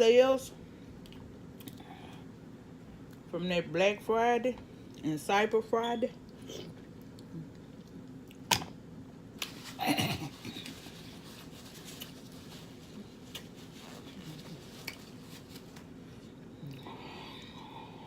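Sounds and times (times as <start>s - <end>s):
faint low hum: 0.0s - 18.0s
wet smacking eating sound: 13.2s - 13.6s.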